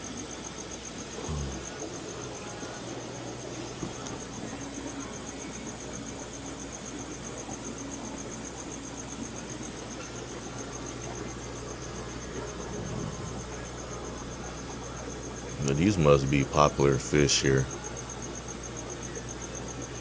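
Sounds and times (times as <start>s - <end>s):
aquarium pumps humming: 0.0s - 20.0s
crickets chirping: 0.0s - 20.0s.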